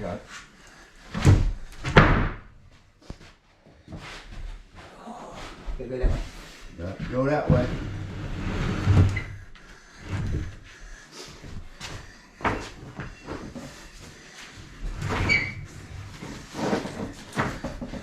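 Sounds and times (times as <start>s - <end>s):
wood knocking and scraping: 16.1s - 18.0s.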